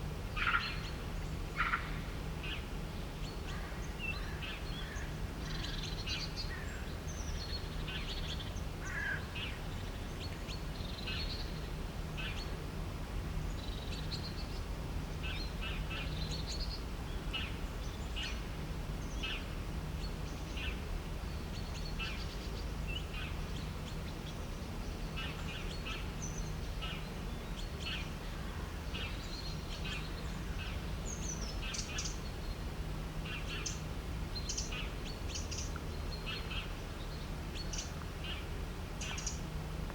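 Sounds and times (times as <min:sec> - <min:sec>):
birds chirping: 0:20.0 - 0:39.5.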